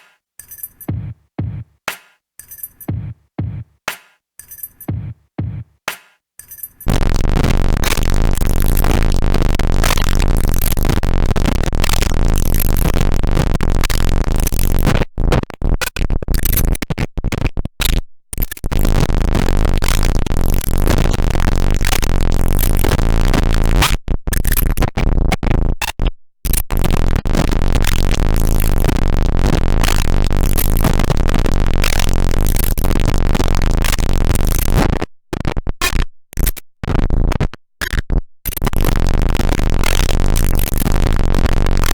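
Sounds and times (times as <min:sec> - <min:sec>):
distorted drum machine noise: 0:00.7 - 0:01.8, 0:02.4 - 0:05.8, 0:06.8 - 0:41.9.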